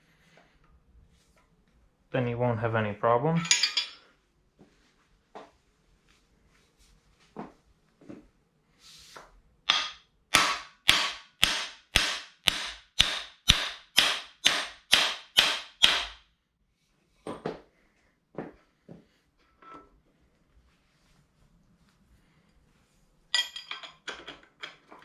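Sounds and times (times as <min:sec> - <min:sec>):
hammer striking metal ringing: 0:09.7 - 0:16.2.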